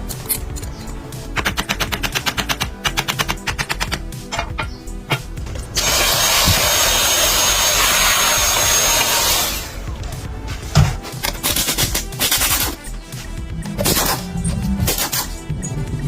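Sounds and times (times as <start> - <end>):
background music: 0.0 - 16.0
fast sharp clicks: 1.3 - 6.6, 11.2 - 12.8
loud tool hiss: 5.8 - 9.8.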